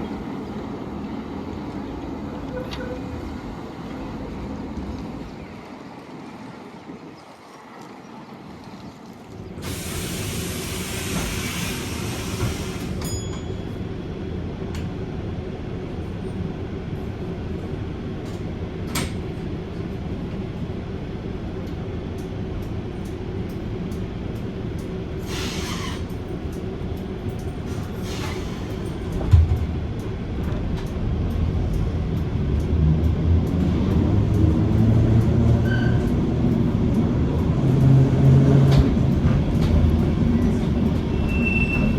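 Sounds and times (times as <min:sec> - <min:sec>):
tram rumbling on rails: 0:00.0 - 0:41.9
burst of hiss: 0:09.6 - 0:12.9.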